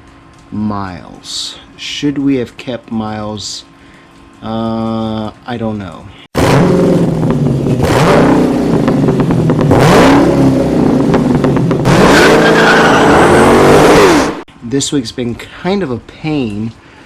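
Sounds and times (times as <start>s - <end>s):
car engine revving: 6.4s - 14.5s
tyre squeal: 12.0s - 14.4s.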